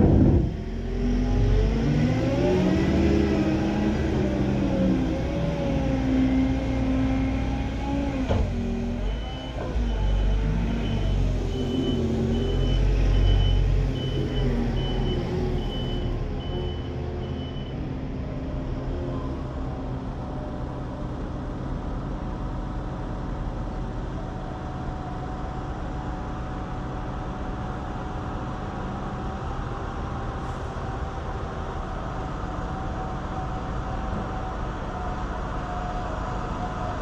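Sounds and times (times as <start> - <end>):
heavy machine engine running: 0.0 - 18.4
reversing alarm beeping: 9.0 - 17.8.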